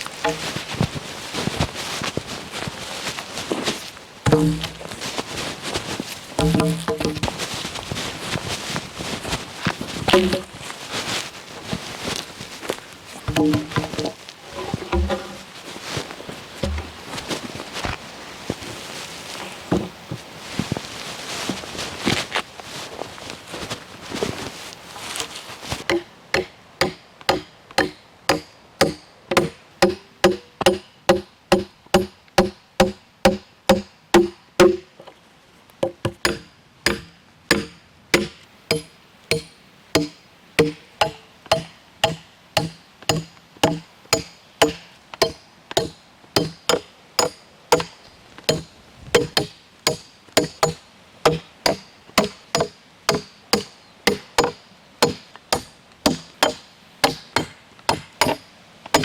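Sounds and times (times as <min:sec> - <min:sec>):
hand tool striking wood: 0:00.2 - 0:00.6, 0:04.3 - 0:05.0, 0:06.4 - 0:07.4, 0:10.1 - 0:10.6, 0:13.3 - 0:15.5, 0:16.6 - 0:17.0, 0:25.8 - 0:35.1, 0:35.8 - 0:59.0.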